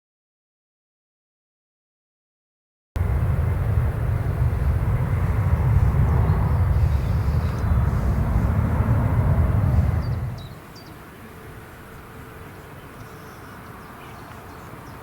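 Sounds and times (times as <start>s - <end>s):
jet engines rumbling: 3.0s - 11.6s.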